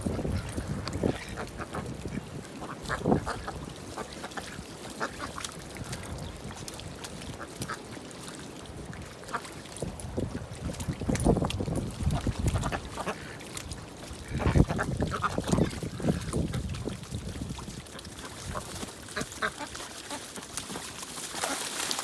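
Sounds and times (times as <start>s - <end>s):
ducks quacking: 0.0s - 5.4s, 12.2s - 13.4s, 14.2s - 16.7s, 17.9s - 20.4s.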